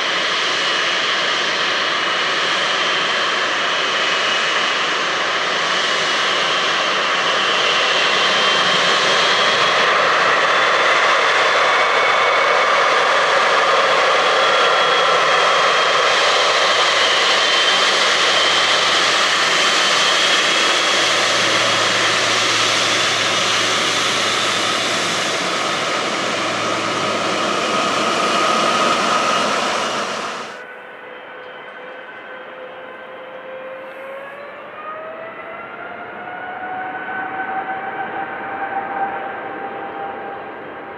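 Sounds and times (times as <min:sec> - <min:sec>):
jet engines at high thrust: 0:00.0 - 0:40.9
whining fan tones: 0:15.7 - 0:32.7.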